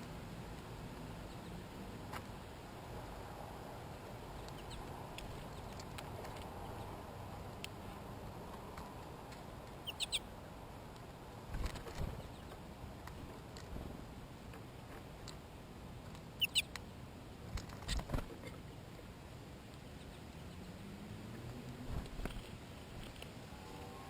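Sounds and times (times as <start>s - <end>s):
small animal chirps: 4.4s - 4.9s, 9.8s - 10.2s, 16.4s - 16.8s.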